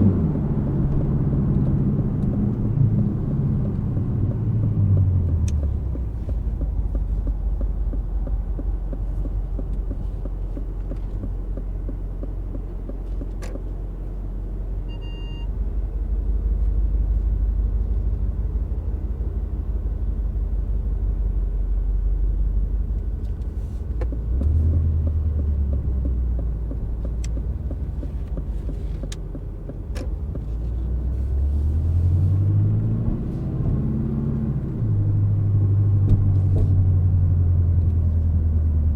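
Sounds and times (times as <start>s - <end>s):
car engine rumbling: 0.0s - 38.9s
short electronic beep: 14.9s - 15.5s.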